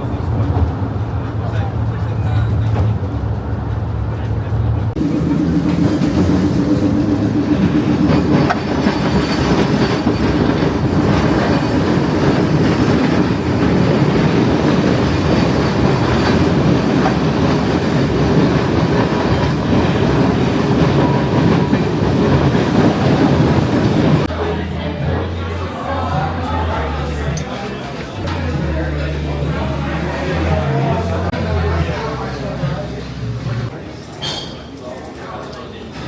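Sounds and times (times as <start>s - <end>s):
train wheels clattering on rails: 0.0s - 24.3s.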